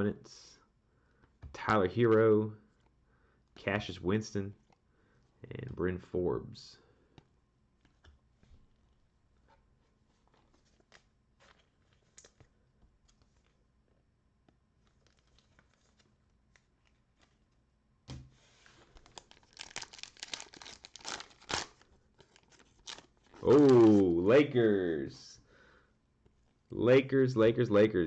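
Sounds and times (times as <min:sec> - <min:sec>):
cellophane wrapper tearing and crinkling: 0:18.9 - 0:24.0.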